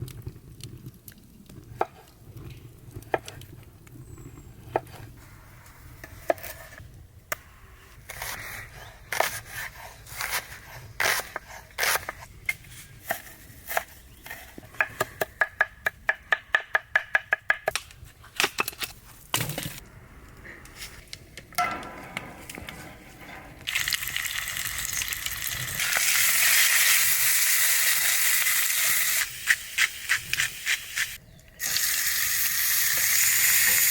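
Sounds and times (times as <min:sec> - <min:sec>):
food sizzling: 0:23.7 - 0:33.9.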